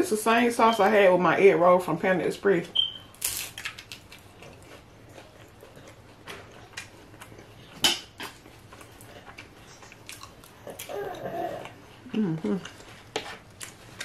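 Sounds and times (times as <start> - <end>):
chewing with crisp crunches: 3.2 - 14.0.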